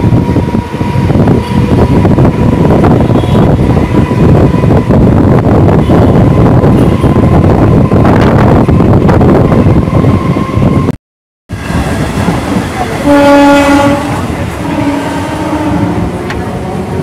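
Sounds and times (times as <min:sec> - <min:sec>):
train wheels rumbling and rattling: 0:00.0 - 0:10.9, 0:11.5 - 0:17.0
train horn: 0:00.2 - 0:04.9, 0:13.0 - 0:17.0.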